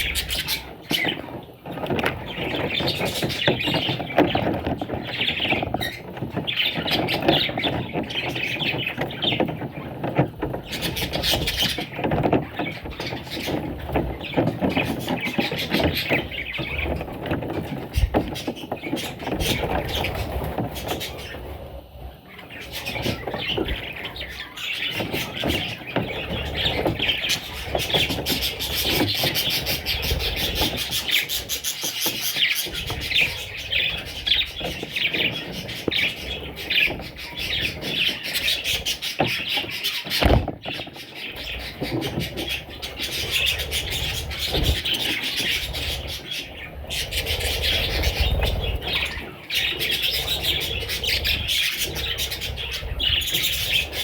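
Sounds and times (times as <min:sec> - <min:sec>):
budgerigars chattering: 0:00.0 - 0:01.3, 0:22.3 - 0:54.0.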